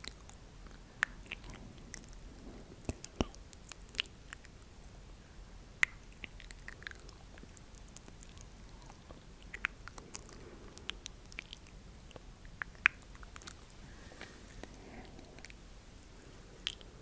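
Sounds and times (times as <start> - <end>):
wet mouth clicks and smacks: 0.0 - 2.2, 2.8 - 4.6, 5.8 - 13.8.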